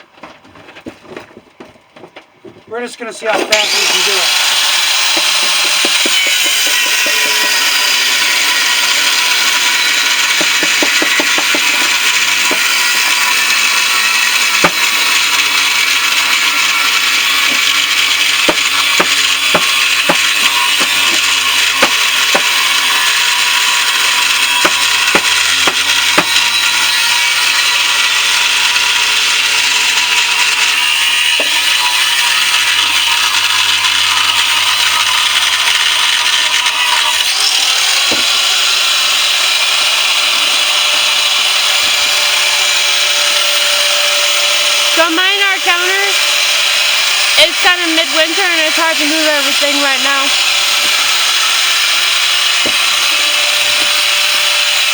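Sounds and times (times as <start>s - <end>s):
power tool cutting steel: 3.3s - 54.9s
sharp clicks and knocks: 5.0s - 38.3s.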